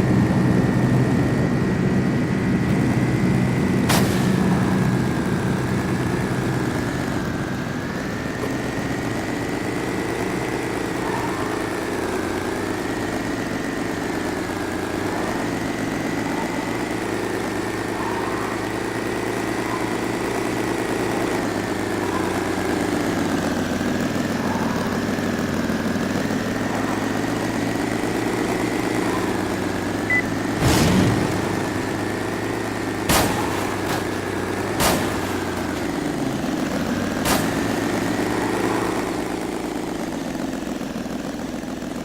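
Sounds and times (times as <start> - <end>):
engine drone: 0.0 - 42.0.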